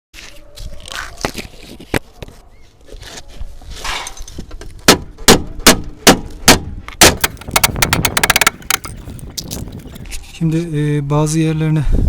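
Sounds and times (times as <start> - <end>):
scraping and handling noise: 0.2 - 4.8, 7.2 - 10.4.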